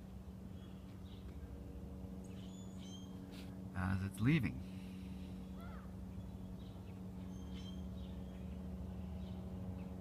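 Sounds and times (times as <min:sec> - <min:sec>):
steady low hum: 0:00.0 - 0:10.0
faint bird chirps: 0:02.3 - 0:03.4, 0:05.4 - 0:08.6.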